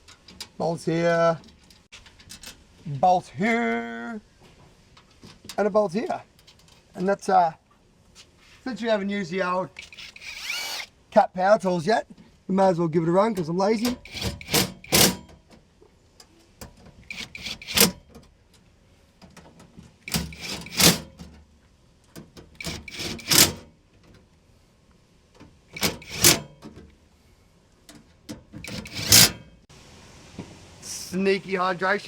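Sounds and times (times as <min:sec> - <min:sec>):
cordless drill driving bolts: 0:09.8 - 0:11.0, 0:13.8 - 0:15.3, 0:17.0 - 0:18.2, 0:20.0 - 0:21.3, 0:22.4 - 0:23.7, 0:25.7 - 0:26.8, 0:28.5 - 0:29.5.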